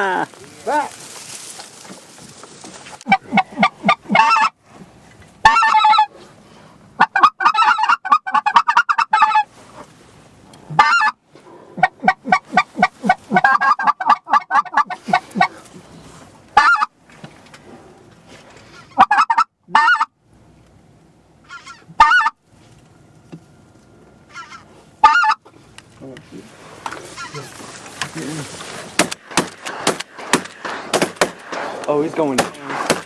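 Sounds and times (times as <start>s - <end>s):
waterfowl honking: 3.0s - 4.6s, 5.4s - 6.1s, 7.0s - 9.5s, 10.7s - 11.2s, 11.8s - 15.7s, 16.5s - 17.0s, 18.7s - 20.2s, 21.4s - 22.4s, 24.3s - 25.5s, 26.8s - 31.5s.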